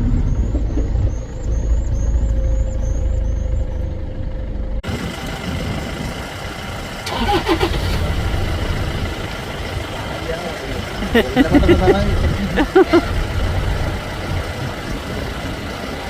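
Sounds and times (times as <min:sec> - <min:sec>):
faint high chirp: 0:00.0 - 0:04.5
jeep engine rumbling: 0:00.0 - 0:16.0.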